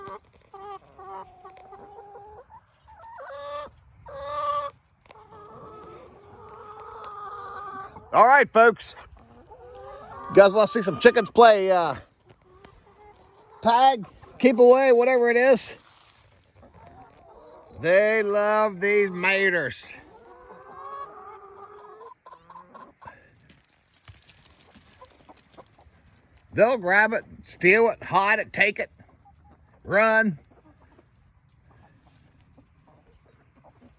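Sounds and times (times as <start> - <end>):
chickens clucking and calling: 0.0 - 33.9.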